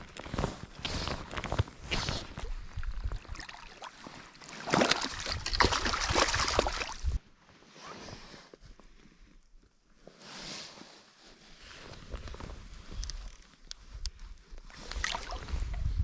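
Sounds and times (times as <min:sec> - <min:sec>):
water splashing and sloshing: 0:00.0 - 0:07.2, 0:14.6 - 0:16.0.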